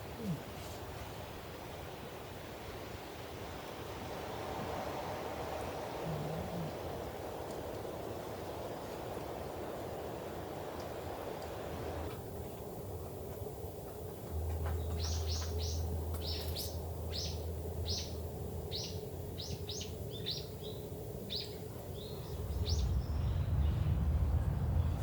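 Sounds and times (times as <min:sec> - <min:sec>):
songbird chirping: 0:07.8 - 0:25.0
low rumble: 0:22.1 - 0:25.0.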